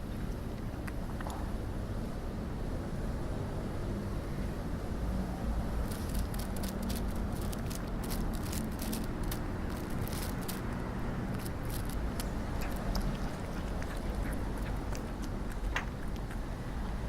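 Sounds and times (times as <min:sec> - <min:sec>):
dry leaves crackling underfoot: 0:05.8 - 0:13.2.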